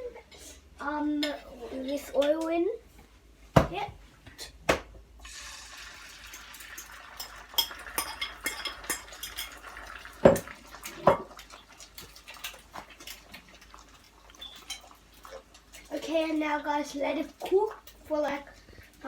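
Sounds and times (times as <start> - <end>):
eggs sizzling in hot oil: 5.2 - 19.0
utensil clinking against pan: 7.2 - 9.7.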